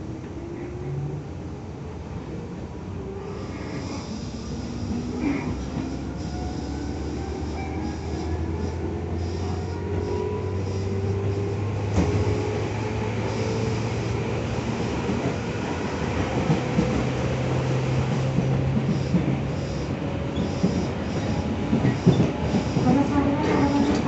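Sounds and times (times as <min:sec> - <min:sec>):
wheels rumbling on rail: 0:00.0 - 0:24.0
electric train motor hum: 0:05.7 - 0:24.0.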